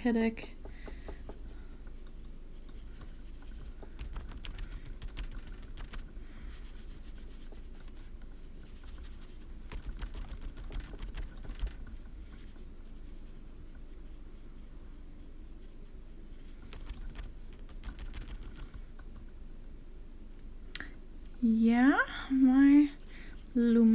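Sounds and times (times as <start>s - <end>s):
light clicks and taps: 0.0s - 12.7s
steady low hum: 0.0s - 23.9s.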